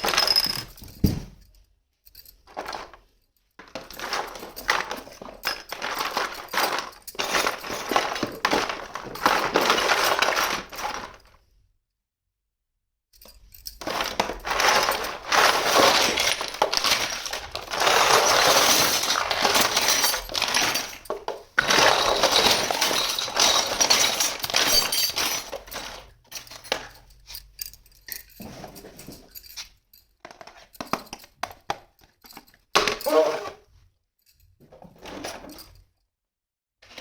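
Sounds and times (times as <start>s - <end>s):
plastic toy pieces clinking: 2.4s - 11.3s, 13.2s - 28.3s.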